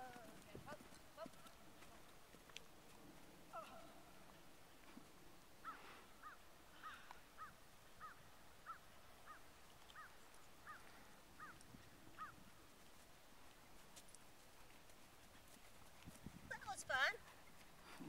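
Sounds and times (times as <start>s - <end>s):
bird calling faintly: 5.6s - 12.4s.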